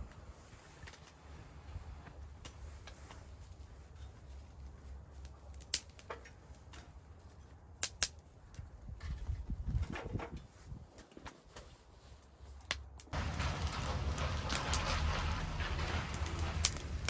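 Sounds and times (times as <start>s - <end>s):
low fire rumble: 0.0s - 11.1s, 11.7s - 17.0s
wood fire crackling pops: 4.5s - 6.9s, 7.8s - 8.7s, 12.6s - 17.0s.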